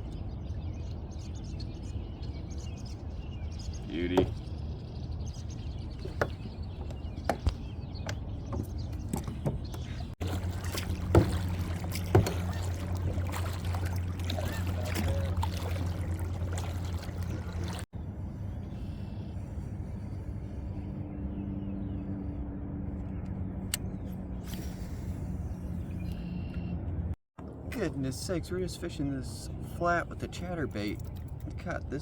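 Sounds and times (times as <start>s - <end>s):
steady low hum: 9.9s - 26.0s
knocks against kayak hull: 11.0s - 13.0s.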